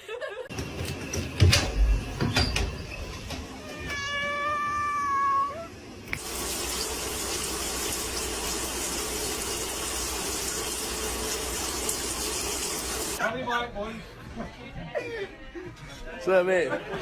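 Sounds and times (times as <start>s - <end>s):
cat meowing: 3.6s - 5.7s
tap running: 6.0s - 13.2s.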